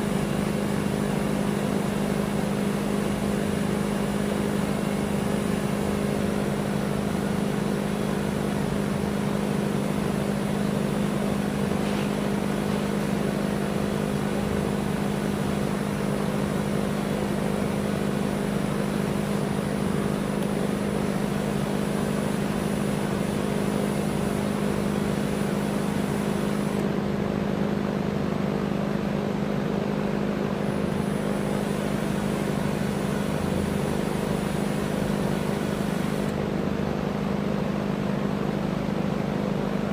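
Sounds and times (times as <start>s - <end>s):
electric motor humming: 11.3s - 26.9s, 30.6s - 36.4s.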